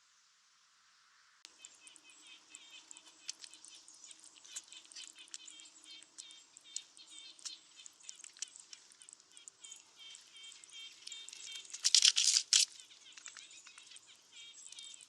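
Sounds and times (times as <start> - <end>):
small birds chirping: 1.5 - 15.0
sharp clicks and ticks: 2.5 - 15.0.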